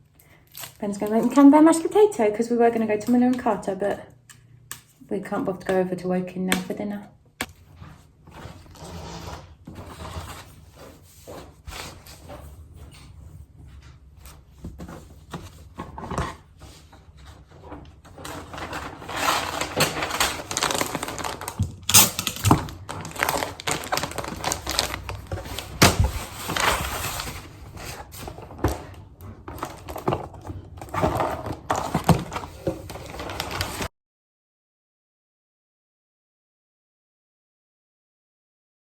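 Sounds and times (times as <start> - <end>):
objects clicking and clattering: 17.7 - 33.9.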